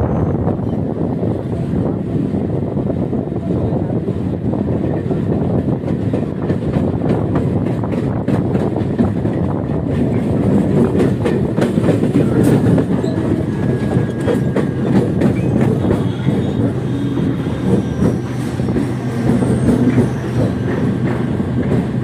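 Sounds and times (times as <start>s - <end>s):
electric train rumbling: 0.0s - 22.0s
wheels clattering on rails: 5.4s - 22.0s.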